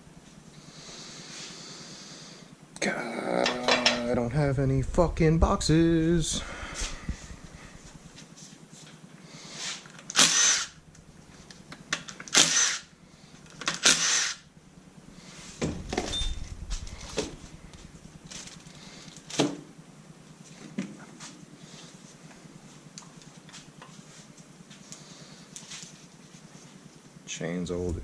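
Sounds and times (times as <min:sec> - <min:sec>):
power tool bursts: 0:10.1 - 0:10.8, 0:12.3 - 0:12.9, 0:13.6 - 0:14.5.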